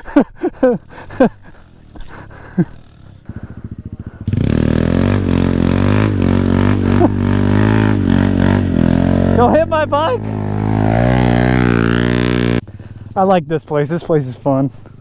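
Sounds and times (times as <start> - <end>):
motorcycle engine running: 0.4 - 15.0.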